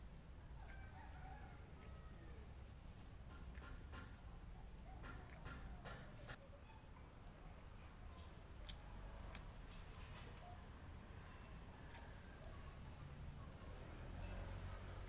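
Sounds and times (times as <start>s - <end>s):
insects chirring: 0.0s - 6.8s.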